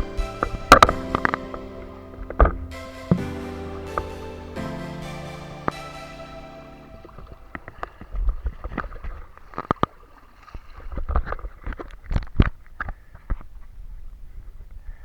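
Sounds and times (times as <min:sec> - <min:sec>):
paddle splashes and drips: 0:06.8 - 0:13.0.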